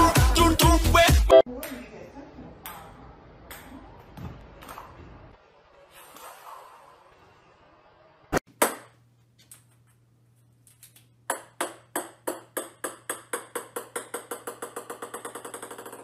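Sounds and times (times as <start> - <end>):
ball bouncing on wooden floor: 11.3 - 16.0.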